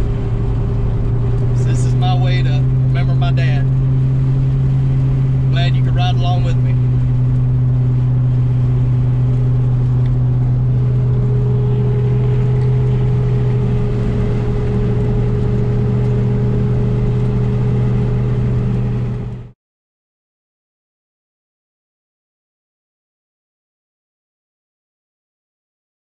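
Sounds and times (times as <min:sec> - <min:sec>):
car engine droning in cabin: 0:00.0 - 0:19.6.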